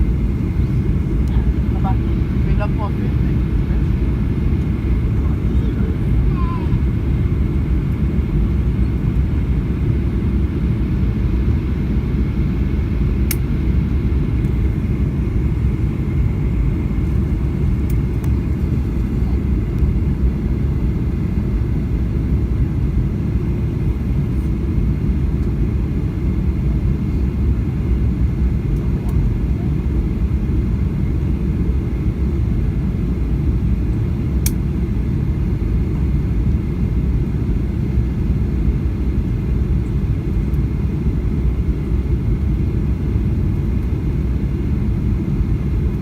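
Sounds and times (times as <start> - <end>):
aircraft cabin rumble: 0.0 - 46.0
faint steady whine: 0.0 - 46.0.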